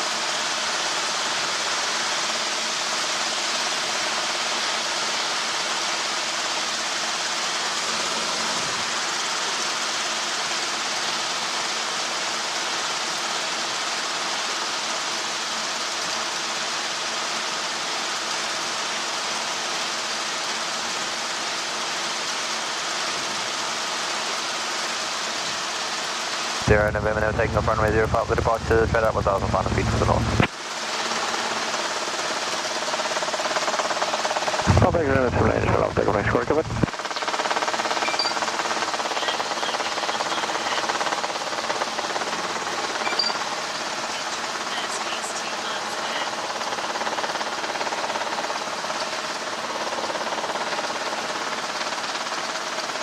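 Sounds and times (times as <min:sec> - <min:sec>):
helicopter noise through intercom: 0:26.6 - 0:30.5, 0:34.5 - 0:37.0, 0:38.0 - 0:48.2.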